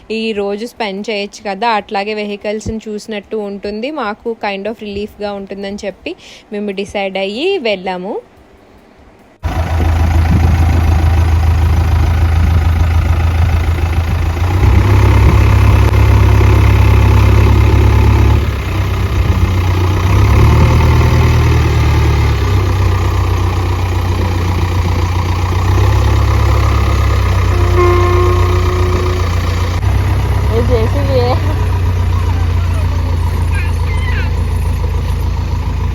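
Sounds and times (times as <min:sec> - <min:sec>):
vehicle engine revving: 0:09.4 - 0:35.9
short steady tone: 0:26.3 - 0:34.7.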